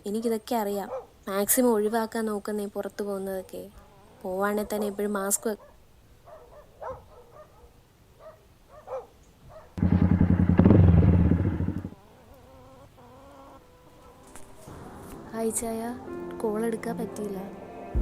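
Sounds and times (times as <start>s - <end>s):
pulsing mechanical buzz: 9.8s - 12.0s.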